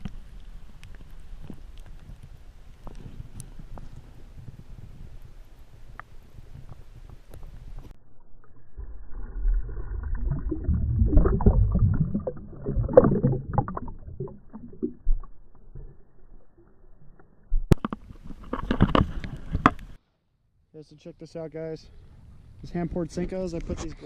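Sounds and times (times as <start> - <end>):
water splashing and sloshing: 7.3 - 20.0.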